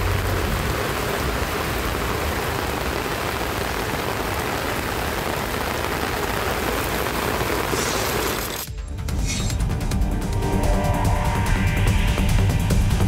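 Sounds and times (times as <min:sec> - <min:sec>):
heavy rain on a street: 0:00.0 - 0:08.7.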